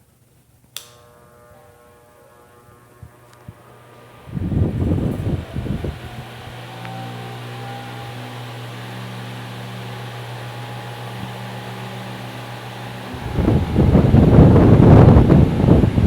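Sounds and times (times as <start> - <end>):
fan motor hum: 0.0 - 16.0
wind rushing on microphone: 4.2 - 6.6, 13.1 - 16.0.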